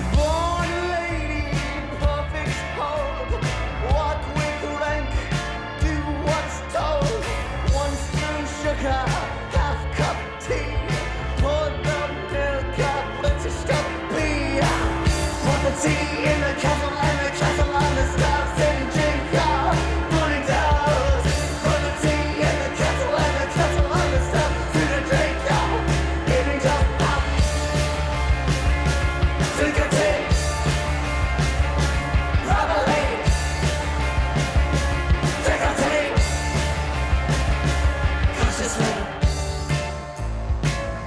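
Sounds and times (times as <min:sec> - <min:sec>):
bass: 0:00.0 - 0:41.0
person singing: 0:05.8 - 0:28.0, 0:29.4 - 0:30.8, 0:35.3 - 0:36.7
drum beat: 0:14.6 - 0:39.9.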